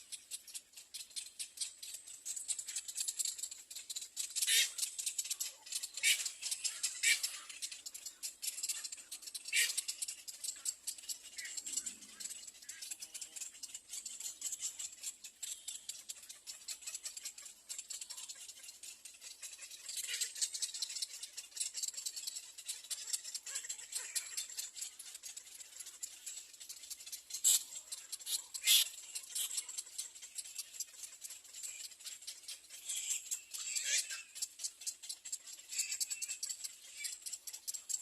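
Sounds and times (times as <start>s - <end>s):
nestlings begging calls: 4.4s - 4.9s, 5.8s - 17.4s, 18.3s - 34.5s.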